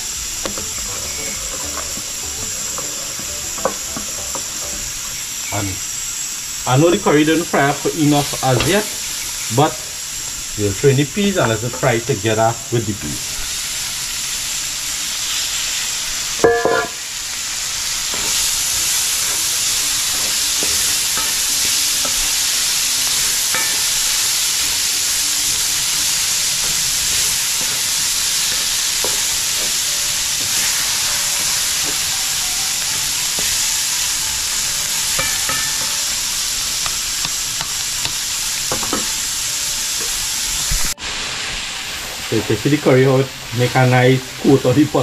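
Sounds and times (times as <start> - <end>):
food sizzling in hot oil: 0.0 - 45.0
spoon scraping pot: 0.4 - 5.1.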